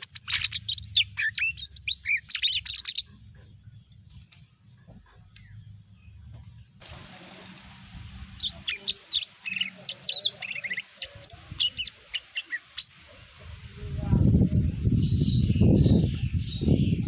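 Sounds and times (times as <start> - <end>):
bird chirps whistles and trills: 0.0 - 3.1, 8.4 - 13.0.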